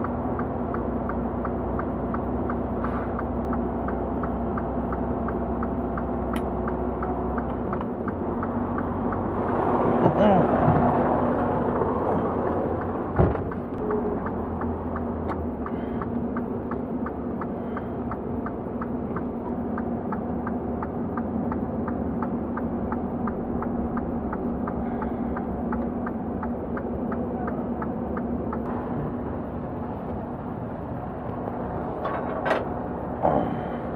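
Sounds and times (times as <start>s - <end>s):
diesel truck engine running: 0.0s - 33.9s.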